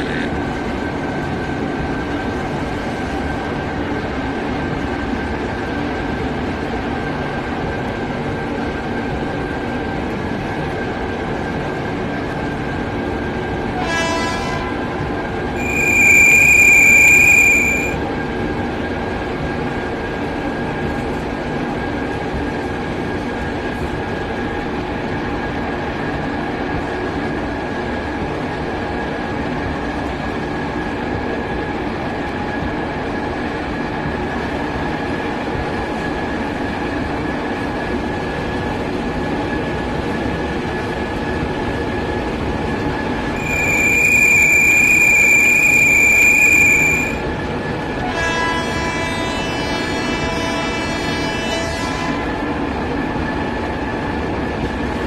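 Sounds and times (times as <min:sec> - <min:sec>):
train running rumble: 0:00.0 - 0:55.0
locomotive horn blast: 0:13.8 - 0:14.9, 0:15.6 - 0:18.0, 0:43.4 - 0:47.2, 0:48.0 - 0:52.4
short tone: 0:15.6 - 0:18.0, 0:43.4 - 0:47.2
thin whine: 0:15.6 - 0:18.0, 0:43.4 - 0:47.2.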